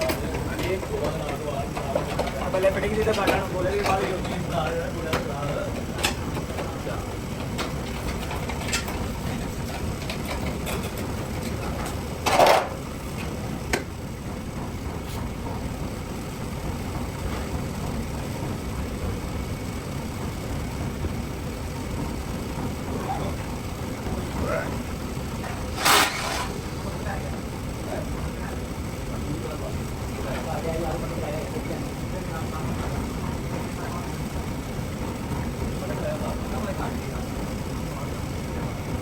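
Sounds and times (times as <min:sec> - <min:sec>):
machinery drone: 0:22.2 - 0:29.8.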